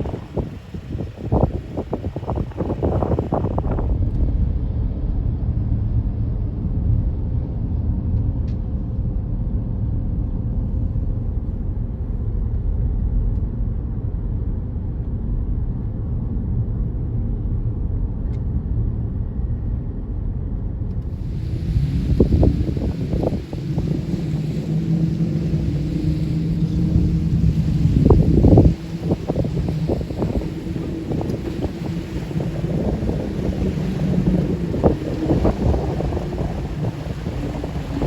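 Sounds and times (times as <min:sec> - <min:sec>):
jet ski engine running: 0:00.0 - 0:04.6, 0:21.0 - 0:38.0
wind noise on microphone: 0:00.0 - 0:38.0.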